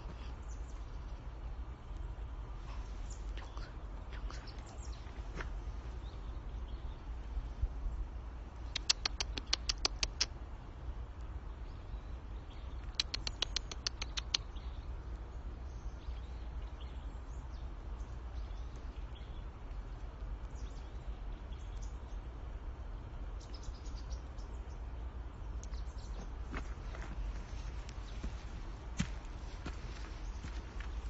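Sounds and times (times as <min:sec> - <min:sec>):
steady low rumble: 0:00.0 - 0:13.0, 0:13.8 - 0:31.0.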